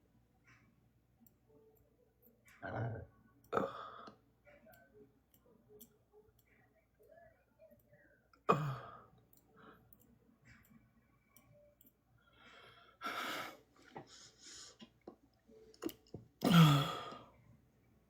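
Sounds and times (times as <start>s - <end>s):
person sighing: 16.4s - 17.3s.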